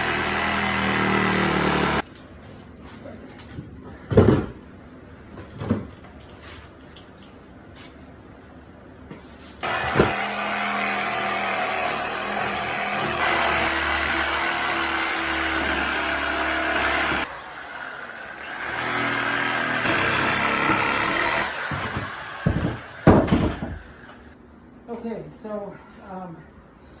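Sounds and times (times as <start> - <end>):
reciprocating saw cutting wood: 0.0 - 2.0, 9.6 - 24.3.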